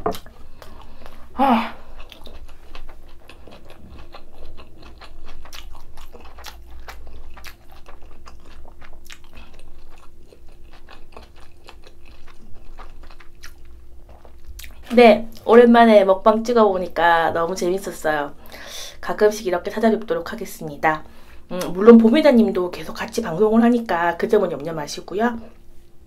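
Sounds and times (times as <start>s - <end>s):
chewing with crisp crunches: 0.0s - 15.5s.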